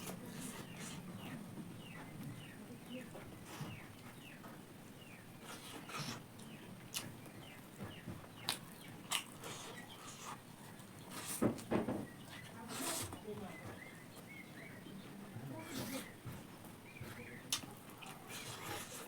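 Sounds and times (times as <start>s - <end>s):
mouth clicks and smacks eating: 5.4s - 13.0s, 17.4s - 19.0s.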